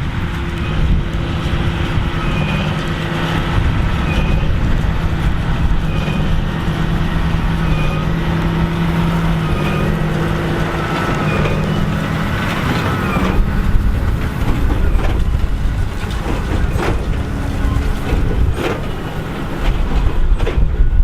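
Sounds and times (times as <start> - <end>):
baler machinery working: 0.0 - 21.0
tractor diesel engine running: 0.0 - 21.0
short squeak: 0.6 - 3.0, 4.0 - 4.6, 5.8 - 6.5, 7.6 - 8.2, 9.0 - 13.6.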